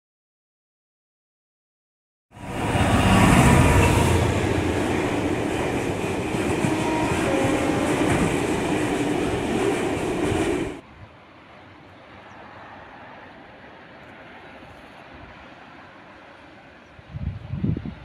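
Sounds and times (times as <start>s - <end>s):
train wheels clattering on rails: 2.8s - 10.8s.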